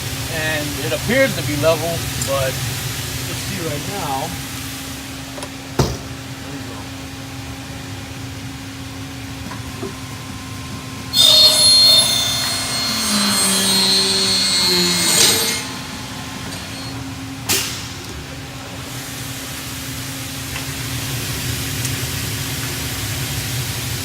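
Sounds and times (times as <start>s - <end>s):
saw motor winding down: 10.3s - 17.5s
saw blade screeching through metal: 11.1s - 17.0s.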